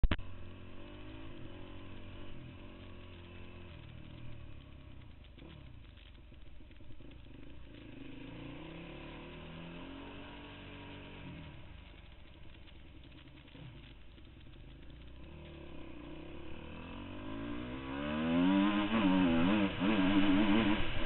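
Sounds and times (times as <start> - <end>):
motocross bikes revving: 13.1 - 21.0.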